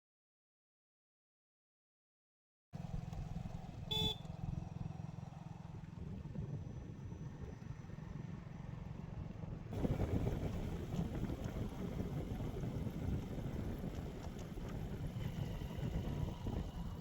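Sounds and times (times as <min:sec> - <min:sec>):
vehicle engine rumbling: 0:02.8 - 0:17.0
short horn beep: 0:03.9 - 0:04.3.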